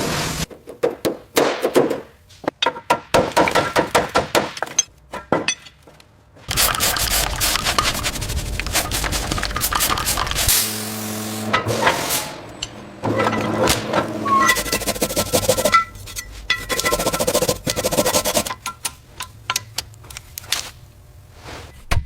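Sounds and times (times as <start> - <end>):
rushing noise with crackles: 6.5 - 10.8.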